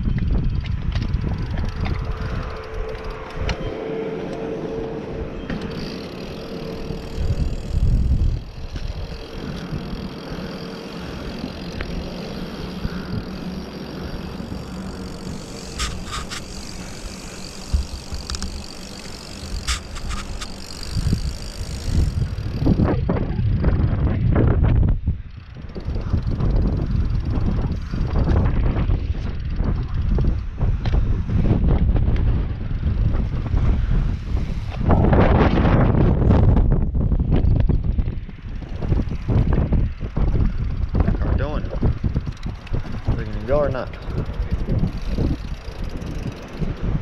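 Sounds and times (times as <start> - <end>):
bike tyres rumbling on dirt: 0.0 - 4.2, 5.2 - 47.0
wind on microphone: 0.0 - 47.0
sharp clicks: 14.6 - 21.8.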